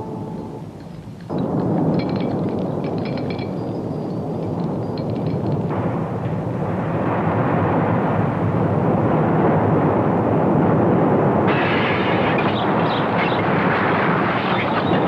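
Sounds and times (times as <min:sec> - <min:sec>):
earthquake rumble roar: 0:01.3 - 0:15.0.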